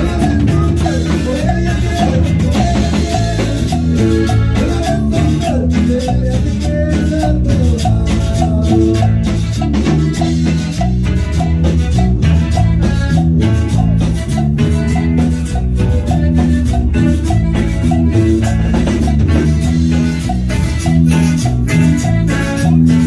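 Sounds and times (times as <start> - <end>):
band playing upbeat song: 0.0 - 23.0.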